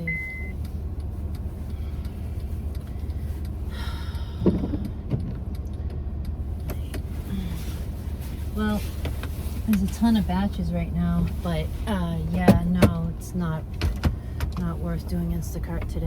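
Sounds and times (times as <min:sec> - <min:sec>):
car engine and road noise: 0:00.0 - 0:16.0
short thump: 0:04.4 - 0:05.4.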